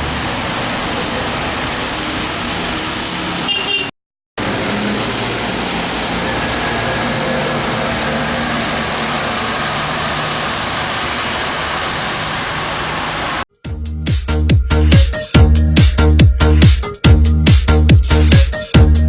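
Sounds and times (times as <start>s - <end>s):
rain: 0.0s - 13.4s
tyres hissing on wet road: 0.0s - 13.5s
low engine hum: 4.4s - 13.4s.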